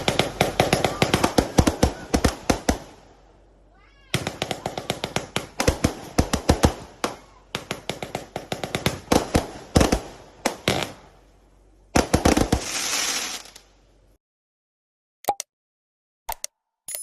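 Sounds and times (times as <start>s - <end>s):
fireworks firing rapid bangs: 0.0s - 3.1s, 4.1s - 11.2s, 11.9s - 13.6s
dense hiss: 12.6s - 13.7s.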